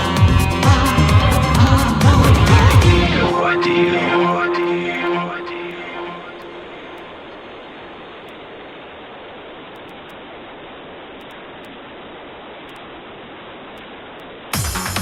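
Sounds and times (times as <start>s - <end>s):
electronic dance music: 0.0s - 7.0s, 14.6s - 15.0s.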